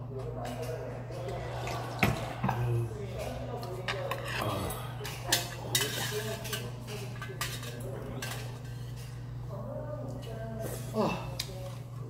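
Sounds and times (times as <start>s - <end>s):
low room hum: 0.0s - 12.0s
utensils clinking against a bowl: 3.2s - 9.3s.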